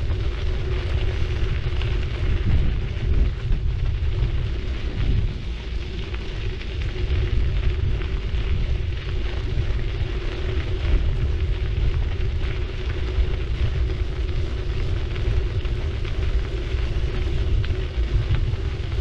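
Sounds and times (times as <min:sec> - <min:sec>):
bike tyres rumbling: 0:00.0 - 0:19.0
fine crackle: 0:00.0 - 0:19.0
steady hum: 0:00.0 - 0:19.0
wind buffeting: 0:00.0 - 0:19.0.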